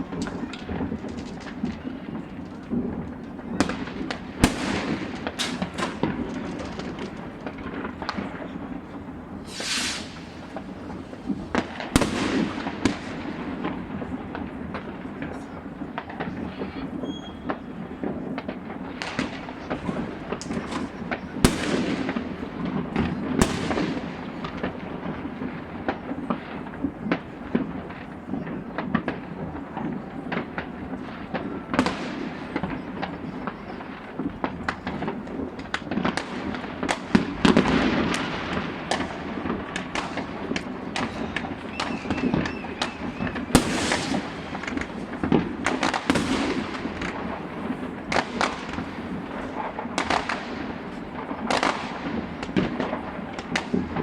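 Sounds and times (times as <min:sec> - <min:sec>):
distant firecrackers crackling: 0:00.0 - 0:54.0
loud nearby firework bangs: 0:00.0 - 0:54.0
firework rocket bursts: 0:03.6 - 0:15.5, 0:36.0 - 0:54.0.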